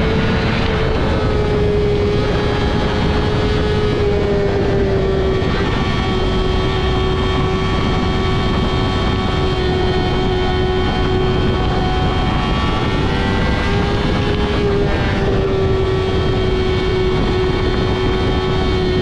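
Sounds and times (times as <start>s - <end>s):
motorcycle engine at high revs: 0.0s - 19.0s
wind and road rush: 0.0s - 19.0s.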